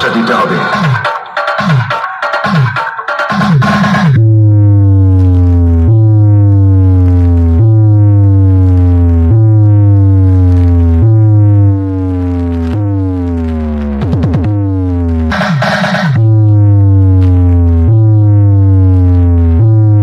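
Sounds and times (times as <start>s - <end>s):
heavy sustained bass note: 4.2s - 14.0s, 16.2s - 20.0s
falling synth tone: 4.2s - 20.0s.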